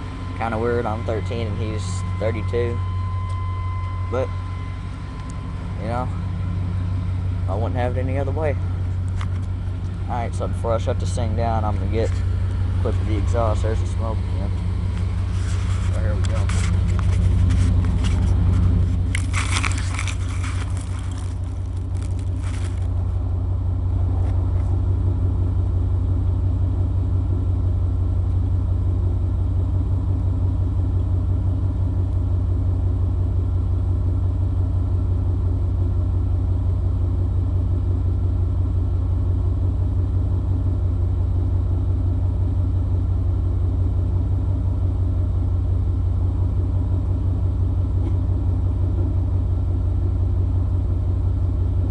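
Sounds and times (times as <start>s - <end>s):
engine idling rumble: 0.0s - 51.9s
rustling noise: 14.9s - 23.2s.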